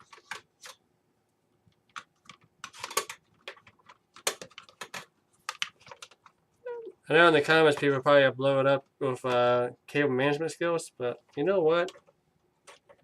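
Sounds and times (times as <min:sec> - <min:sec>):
computer parts clicking and rustling: 0:00.0 - 0:00.8, 0:01.6 - 0:06.5, 0:11.1 - 0:13.0.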